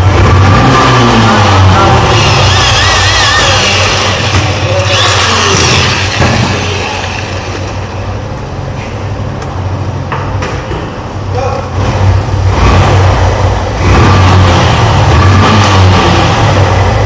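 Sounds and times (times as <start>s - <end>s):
motorcycle engine running: 0.0s - 10.3s.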